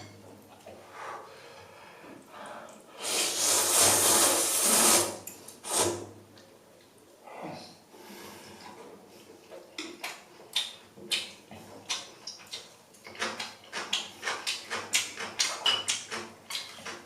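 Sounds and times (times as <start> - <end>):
person slurping noodles: 3.0 - 6.0.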